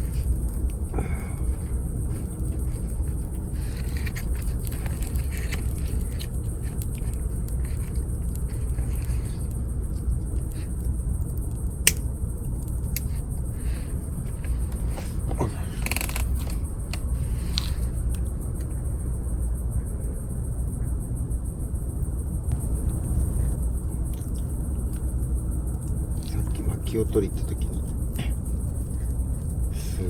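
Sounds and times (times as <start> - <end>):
campfire crackling: 0.0 - 18.5.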